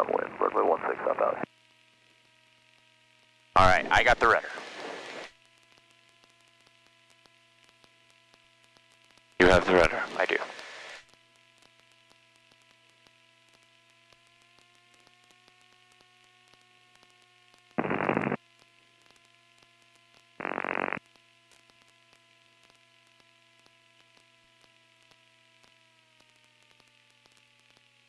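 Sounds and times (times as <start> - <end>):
aircraft engine drone: 0.0 - 1.4, 3.6 - 5.3, 9.4 - 11.0
radio static bursts: 0.0 - 1.5, 3.6 - 5.3, 9.4 - 11.0, 17.8 - 18.4, 20.4 - 21.0.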